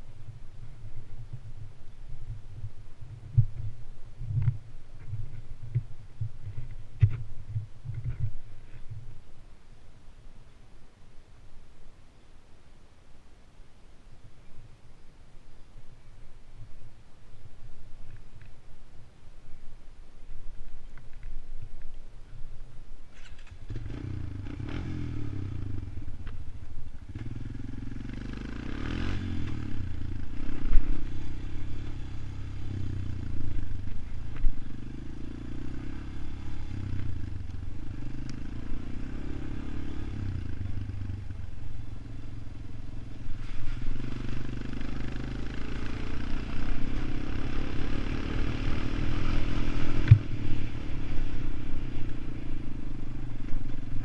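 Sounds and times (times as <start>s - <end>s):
atv engine revving: 23.2s - 54.0s.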